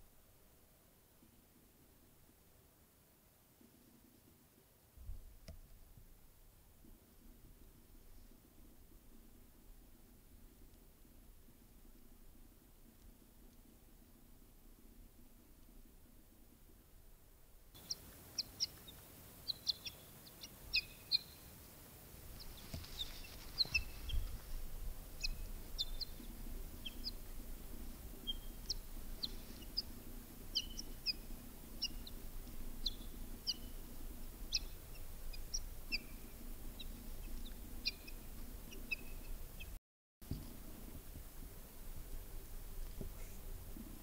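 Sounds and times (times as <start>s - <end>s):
small birds chirping: 17.8s - 39.8s.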